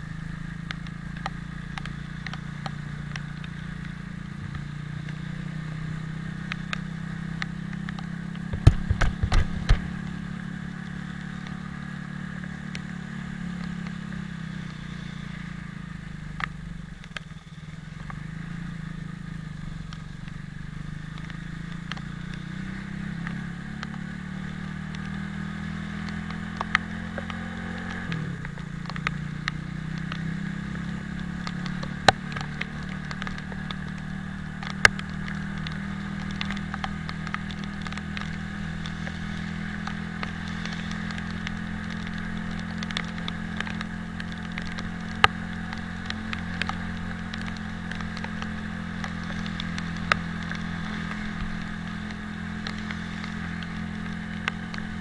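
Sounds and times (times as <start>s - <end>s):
motorcycle engine running: 0.0s - 55.0s
sharp ticks: 7.4s - 10.2s, 34.6s - 55.0s.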